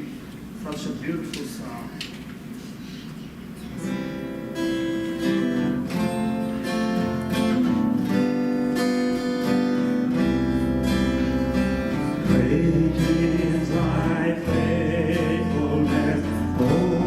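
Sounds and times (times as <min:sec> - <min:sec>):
acoustic guitar strumming chords: 0:03.7 - 0:17.0
deep bass: 0:12.2 - 0:17.0.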